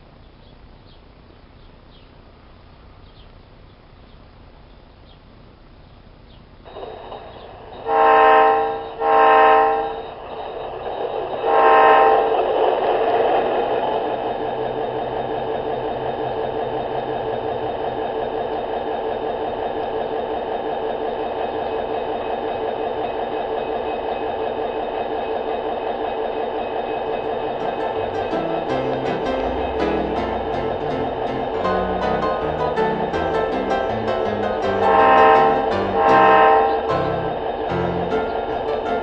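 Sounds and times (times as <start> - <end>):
engine drone: 3.9 - 11.6, 12.2 - 25.0, 26.5 - 39.0
train horn blasts: 7.8 - 10.0, 11.4 - 12.3, 34.8 - 38.7.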